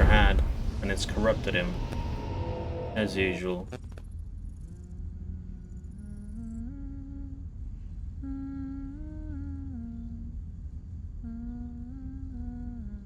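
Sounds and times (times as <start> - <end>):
steady low drone: 0.0 - 13.0
person humming a melody: 4.6 - 7.5, 8.2 - 10.5, 11.2 - 13.0.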